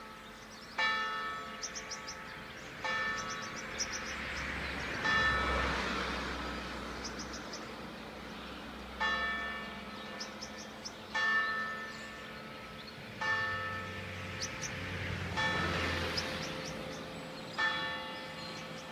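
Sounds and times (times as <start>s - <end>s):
church bell tolling: 0.0s - 3.8s, 5.0s - 6.2s, 9.0s - 14.5s, 15.4s - 18.9s
small birds chirping: 0.0s - 5.3s, 6.8s - 13.2s, 14.0s - 18.9s.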